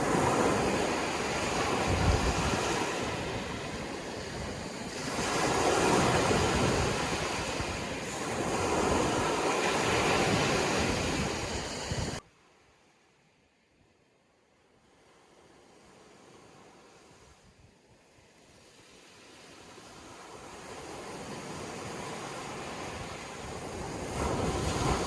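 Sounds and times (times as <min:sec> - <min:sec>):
sea waves washing in surf: 0:00.0 - 0:12.2, 0:14.8 - 0:25.0.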